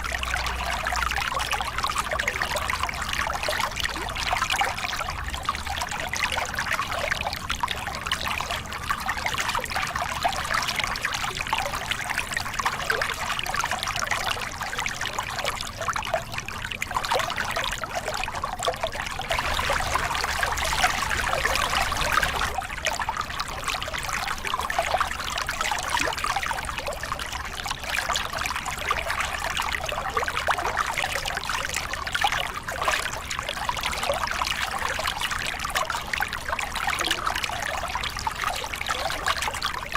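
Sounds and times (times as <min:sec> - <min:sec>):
water splashing over rocks: 0:16.6 - 0:27.0.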